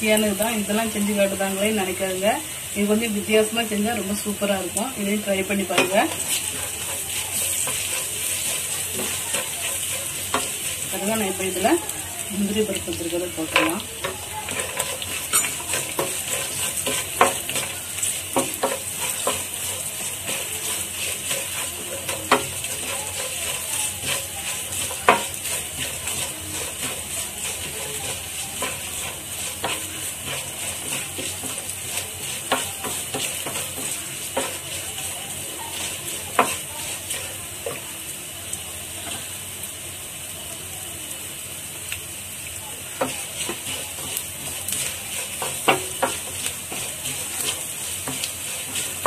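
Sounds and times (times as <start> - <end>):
food sizzling in hot oil: 0.0 - 49.0
wooden spatula scraping pan: 5.1 - 11.8, 13.4 - 37.8, 43.0 - 49.0.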